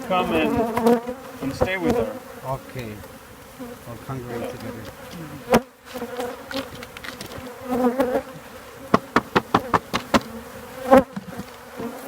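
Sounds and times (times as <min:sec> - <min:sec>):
honeybees buzzing: 0:00.0 - 0:12.0
sharp taps: 0:08.9 - 0:10.4.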